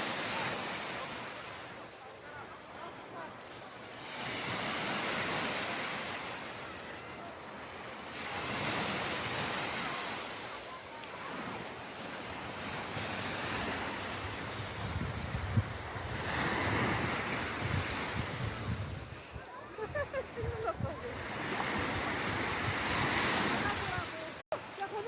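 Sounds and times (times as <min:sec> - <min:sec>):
sea waves breaking: 0:00.0 - 0:25.0
wind buffeting microphone: 0:14.0 - 0:24.0.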